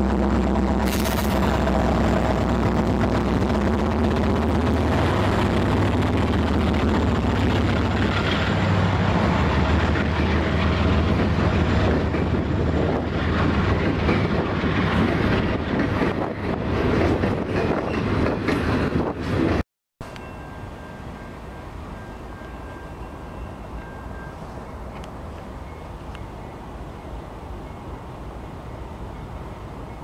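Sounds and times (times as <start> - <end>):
diesel locomotive hum: 0.0 - 30.0
train wheels clattering on rails: 0.8 - 20.2.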